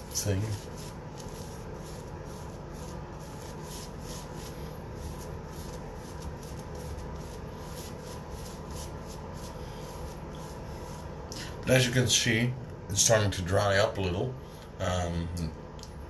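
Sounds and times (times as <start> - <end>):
razor scraping stubble: 0.0 - 11.1.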